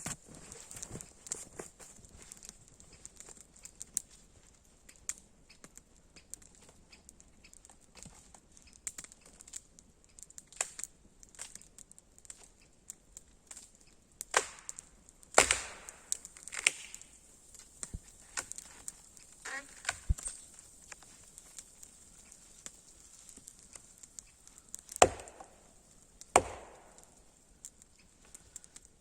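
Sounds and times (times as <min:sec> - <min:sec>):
firewood cracking and knocking: 0:00.0 - 0:29.0
heavy chopping strikes: 0:15.4 - 0:17.0, 0:25.0 - 0:25.7, 0:26.3 - 0:27.1.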